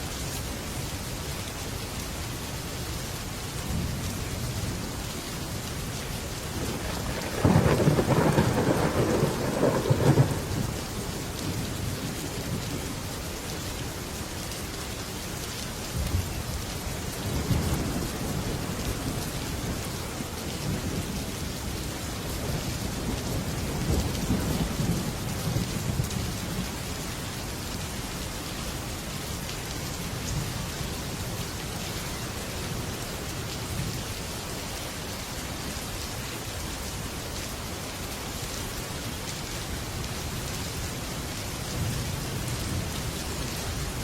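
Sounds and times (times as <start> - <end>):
heavy rain on a metal roof: 0.0 - 44.0
low thunder rumbling: 6.5 - 13.0.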